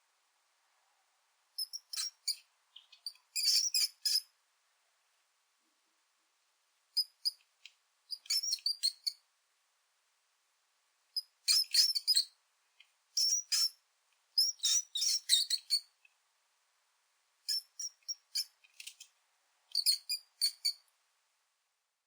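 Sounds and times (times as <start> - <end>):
mouse squeaks: 1.6 - 4.3, 7.0 - 7.4, 8.1 - 9.2, 11.2 - 12.4, 13.2 - 13.8, 14.4 - 15.9, 17.5 - 19.1, 19.7 - 20.8.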